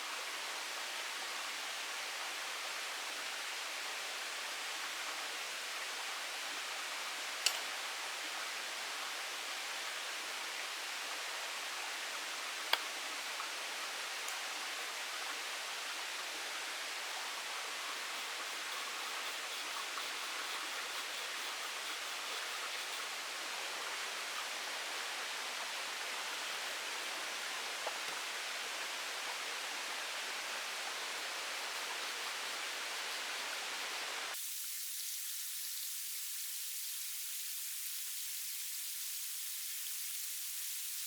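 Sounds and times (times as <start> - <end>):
faint ticks: 12.7 - 12.9
thin high hiss: 31.0 - 41.0.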